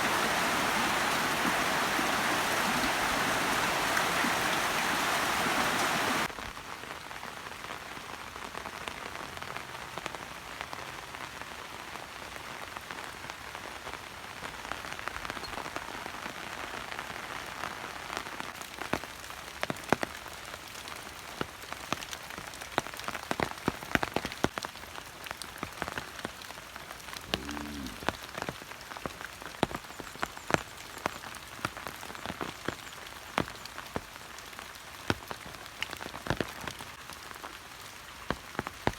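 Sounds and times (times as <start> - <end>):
rushing water: 0.0 - 6.5, 18.5 - 38.9
rain falling: 0.0 - 38.9.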